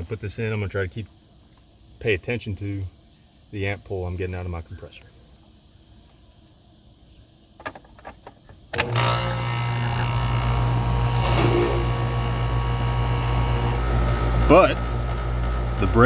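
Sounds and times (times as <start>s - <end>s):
air conditioner condenser humming: 8.8s - 16.0s.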